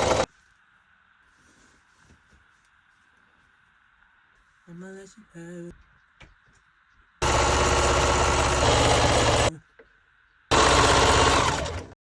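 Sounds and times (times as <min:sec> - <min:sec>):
sewing machine stitching: 0:00.0 - 0:00.3, 0:07.2 - 0:09.5, 0:10.5 - 0:12.0.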